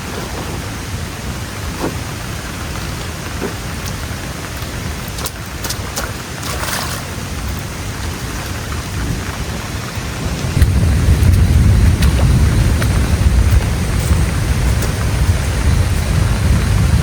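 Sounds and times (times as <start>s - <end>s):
steady rainfall: 0.0s - 17.0s
sharp drips: 3.7s - 17.0s
deep low rumble: 10.2s - 17.0s.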